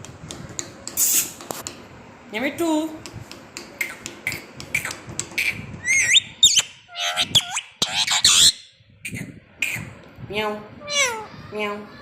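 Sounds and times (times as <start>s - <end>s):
parrot whistled chirps: 5.8s - 8.7s.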